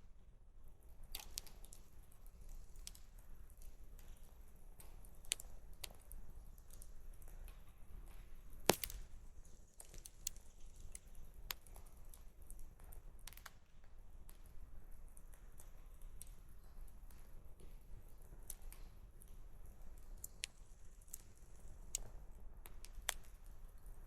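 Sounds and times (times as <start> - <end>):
loud sharp crack of fire: 8.7 - 9.3
campfire crackling: 8.7 - 13.6.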